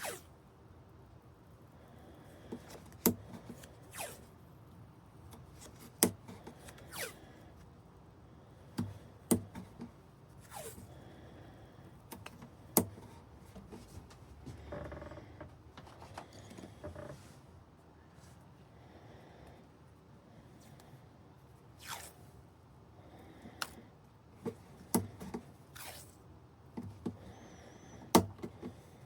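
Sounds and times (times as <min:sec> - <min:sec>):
short falling swishes: 0:00.0 - 0:00.2, 0:21.8 - 0:22.2.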